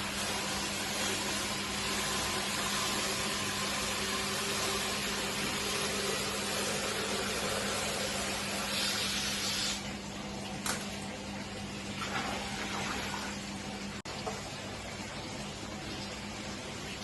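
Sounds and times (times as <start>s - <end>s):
spraying water hiss: 0.0s - 9.9s.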